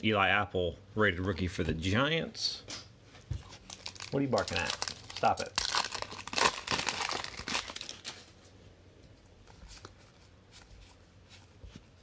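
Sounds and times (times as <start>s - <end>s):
cards rustling: 3.4s - 8.4s
plastic wrapper crinkling and tearing: 3.5s - 8.4s.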